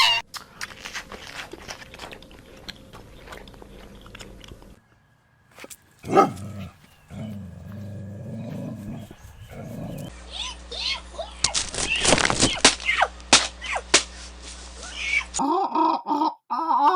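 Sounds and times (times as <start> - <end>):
low steady rumbling: 6.0 - 10.1.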